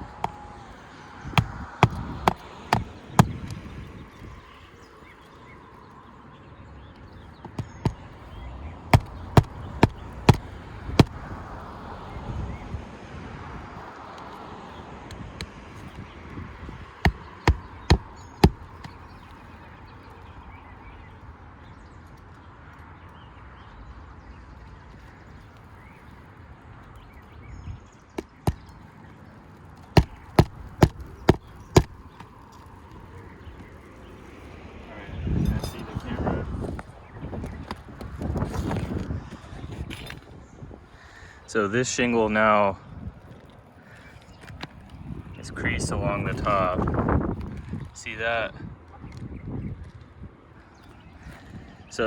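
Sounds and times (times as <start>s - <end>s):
hammer striking roofing nails: 0.1s - 0.5s, 1.3s - 3.6s, 7.4s - 8.2s, 8.9s - 11.4s, 17.0s - 19.1s, 28.2s - 28.7s, 30.0s - 32.3s.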